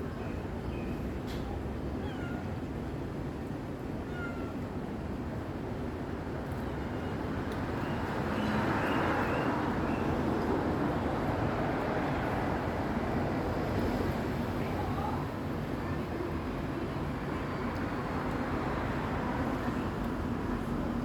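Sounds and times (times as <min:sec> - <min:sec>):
cats meowing faintly: 0:02.0 - 0:02.6, 0:04.0 - 0:04.7.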